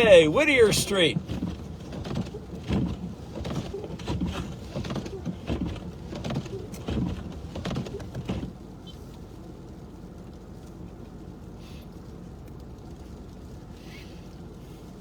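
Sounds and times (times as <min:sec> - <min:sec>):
car cabin hum: 0:00.0 - 0:08.4.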